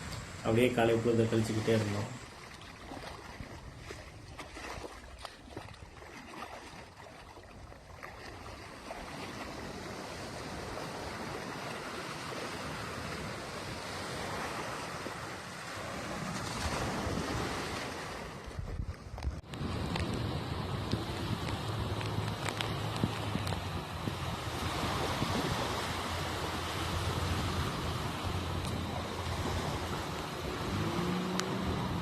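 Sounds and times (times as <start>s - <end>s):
surf washing onto beach: 0.0s - 4.0s, 8.2s - 18.8s, 19.5s - 32.0s
wind buffeting microphone: 16.0s - 32.0s.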